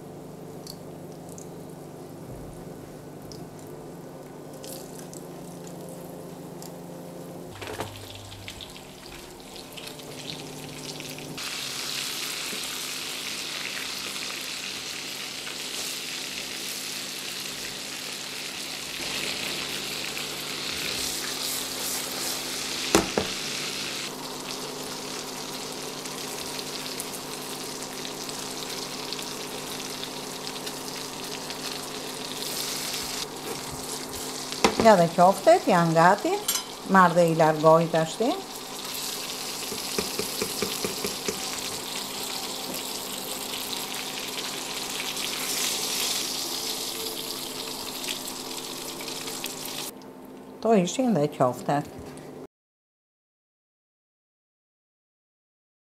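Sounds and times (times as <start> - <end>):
patties sizzling in oil: 7.6 - 49.9.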